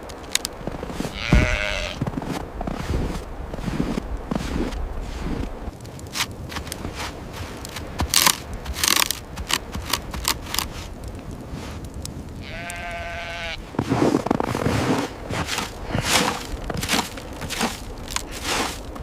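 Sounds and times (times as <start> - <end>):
crunching steps: 0.0 - 19.0
animal bleat: 1.1 - 2.0, 12.4 - 13.6.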